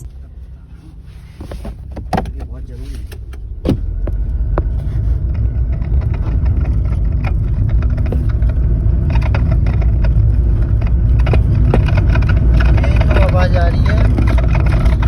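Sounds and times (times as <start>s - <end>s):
car interior rumble: 0.0s - 15.0s
rattling clicks and knocks: 4.6s - 15.0s.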